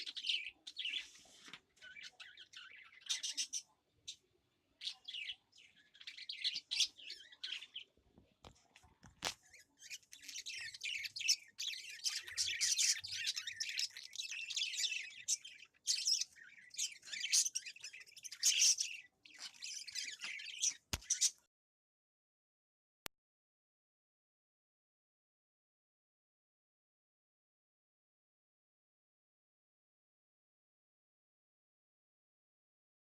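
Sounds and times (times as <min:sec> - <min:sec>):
small birds chirping: 0:00.0 - 0:21.5.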